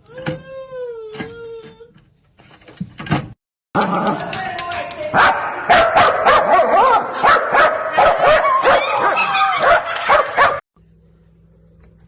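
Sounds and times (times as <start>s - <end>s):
dog barking and yipping: 5.2s - 10.6s.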